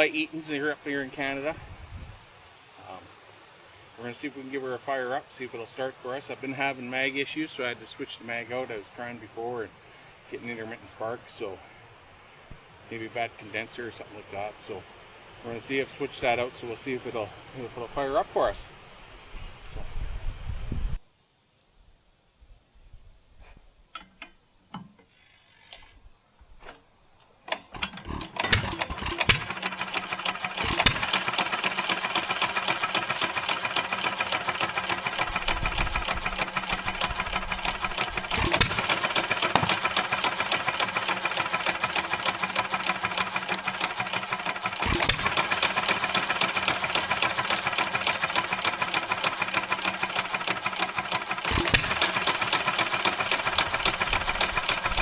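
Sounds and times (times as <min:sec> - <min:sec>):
stationary engine running: 0:27.5 - 0:55.0.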